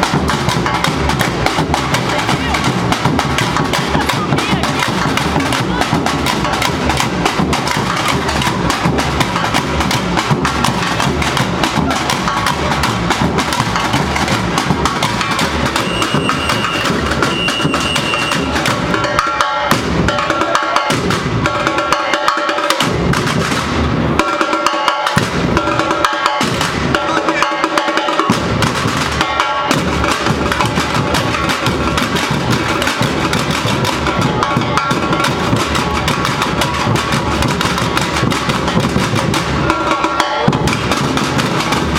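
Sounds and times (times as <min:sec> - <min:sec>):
deep bass drums: 0:00.0 - 0:19.0
samba drum ensemble: 0:00.0 - 0:41.9.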